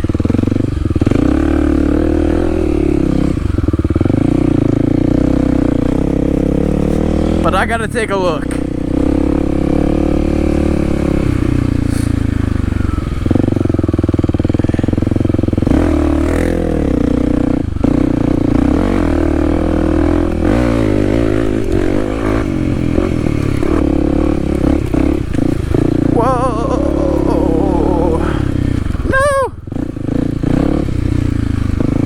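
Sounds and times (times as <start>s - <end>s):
dirt bike engine: 0.0s - 32.0s.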